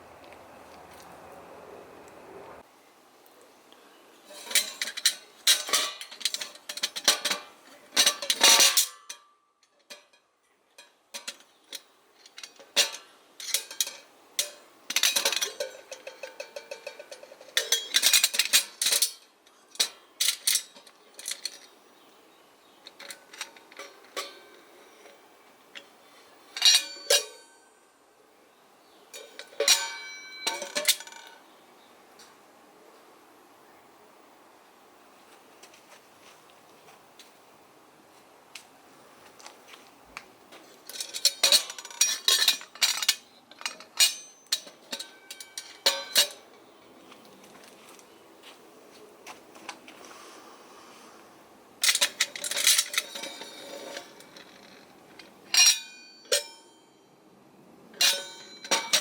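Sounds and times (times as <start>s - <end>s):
metal kettles clinking: 4.3s - 10.2s, 10.8s - 21.8s, 22.9s - 25.2s, 25.8s - 27.6s, 29.1s - 31.4s, 40.9s - 46.7s, 51.8s - 54.9s, 55.5s - 56.8s, 58.0s - 59.0s.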